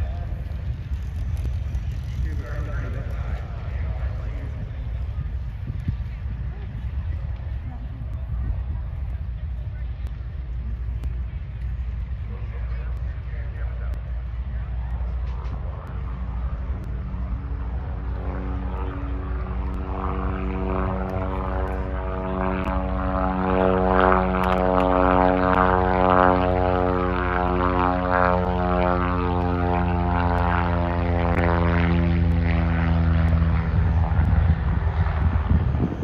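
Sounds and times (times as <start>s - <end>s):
biplane engine droning: 0.0s - 36.0s.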